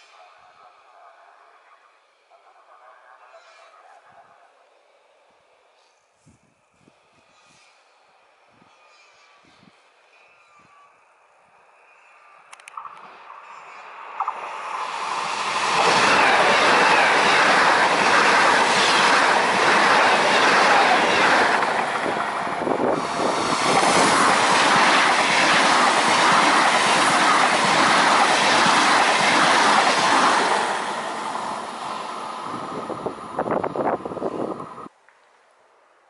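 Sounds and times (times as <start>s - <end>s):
high-speed train passing: 11.6s - 34.9s.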